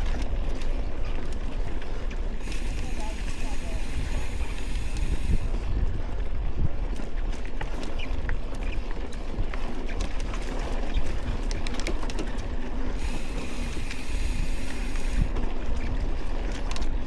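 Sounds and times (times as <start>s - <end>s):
mountain bike rattling on dirt: 0.0s - 17.0s
wind buffeting microphone: 0.0s - 17.0s
faint high whine: 2.4s - 5.7s.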